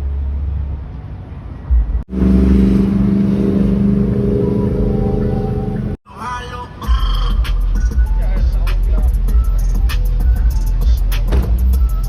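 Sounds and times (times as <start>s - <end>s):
car engine rumble: 0.1s - 6.0s
loud steady engine drone: 2.1s - 6.0s.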